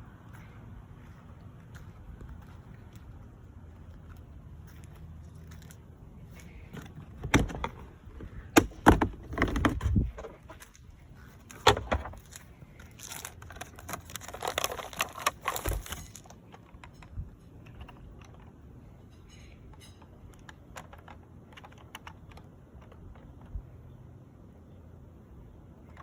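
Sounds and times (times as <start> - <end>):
objects clicking and rustling: 11.4 - 23.5.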